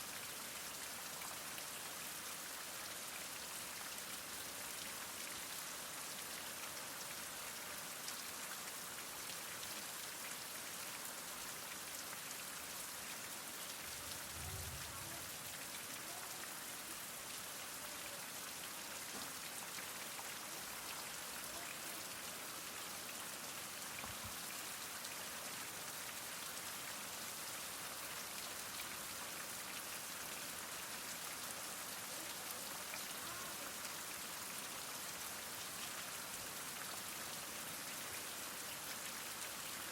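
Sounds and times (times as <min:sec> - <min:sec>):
heavy rain falling: 0:13.8 - 0:18.2.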